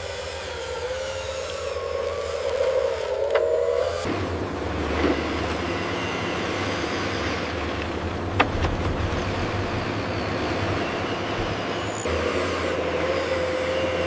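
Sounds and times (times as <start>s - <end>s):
construction machinery engine rumble: 0.8s - 14.0s.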